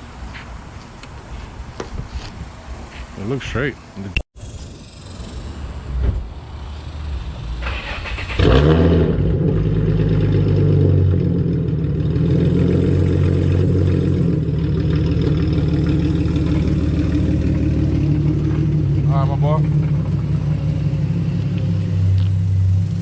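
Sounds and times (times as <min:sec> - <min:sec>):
car engine idling: 0:05.0 - 0:23.0
car engine cranking: 0:07.6 - 0:23.0.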